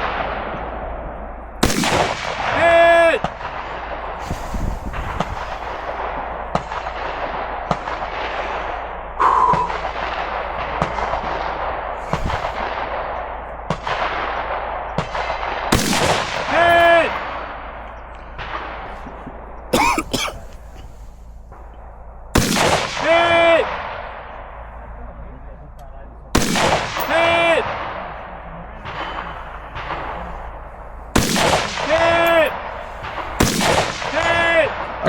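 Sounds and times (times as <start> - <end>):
gunshots echoing: 1.6 - 21.7, 22.3 - 24.7, 26.4 - 35.0.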